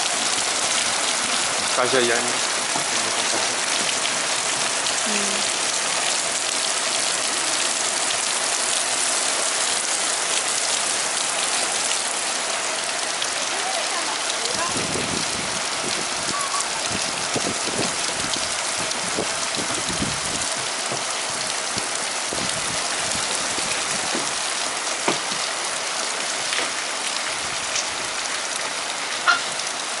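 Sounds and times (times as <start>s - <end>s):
steady rain falling: 0.0s - 30.0s
raindrop hits: 0.1s - 6.7s, 13.6s - 25.6s.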